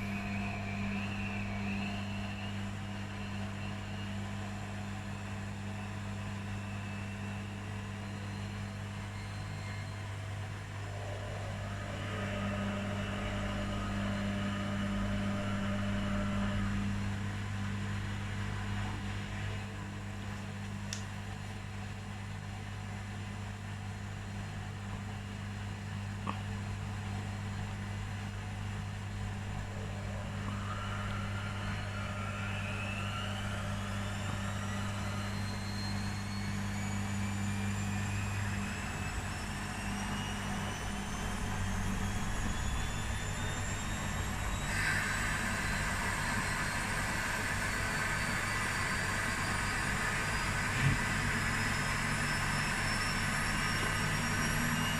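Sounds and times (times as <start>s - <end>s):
washing machine drum motor whine: 0.0s - 54.9s
washing machine low hum: 0.0s - 54.9s.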